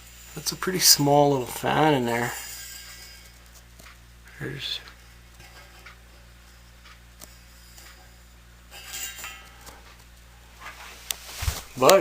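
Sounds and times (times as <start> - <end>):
bathroom exhaust fan humming: 0.0 - 12.0
faint rustles: 8.9 - 12.0.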